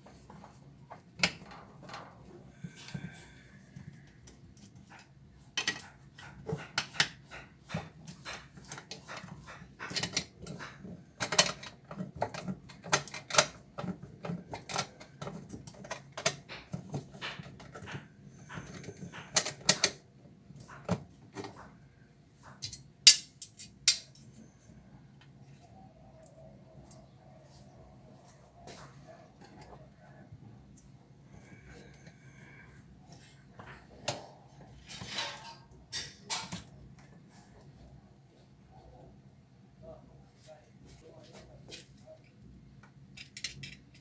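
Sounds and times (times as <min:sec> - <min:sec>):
tools and metal parts clinking: 0:22.6 - 0:24.2, 0:43.1 - 0:44.0.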